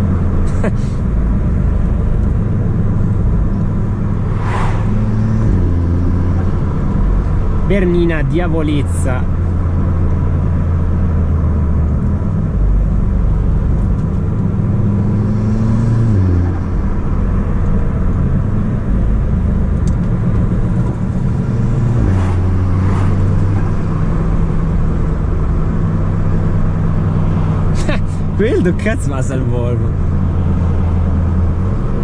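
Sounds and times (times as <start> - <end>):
car engine running: 0.0 - 32.0.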